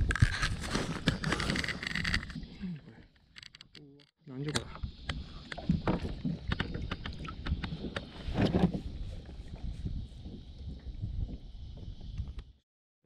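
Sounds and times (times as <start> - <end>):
knocks and clatter on a kayak: 4.6 - 12.5.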